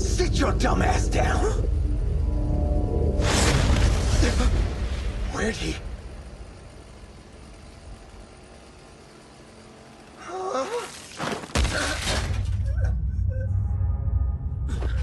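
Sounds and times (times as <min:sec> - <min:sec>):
voiced sound with gliding pitch: 0:00.0 - 0:03.4
low steady rumble: 0:00.0 - 0:10.5, 0:12.3 - 0:15.0.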